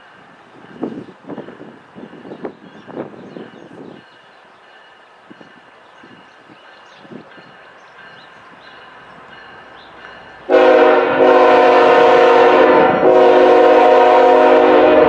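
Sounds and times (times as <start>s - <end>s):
locomotive air horn blowing: 10.5s - 15.0s.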